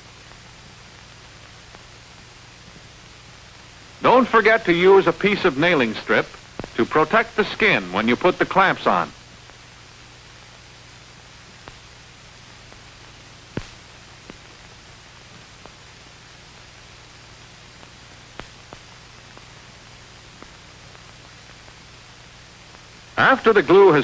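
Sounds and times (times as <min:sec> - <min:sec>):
film soundtrack hiss and hum: 0:00.0 - 0:24.0
sharp clicks and pops: 0:17.8 - 0:19.5.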